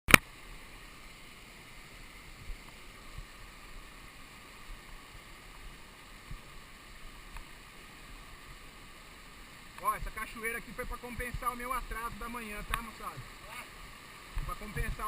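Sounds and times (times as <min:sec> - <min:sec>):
waterfall rushing: 0:00.2 - 0:15.0.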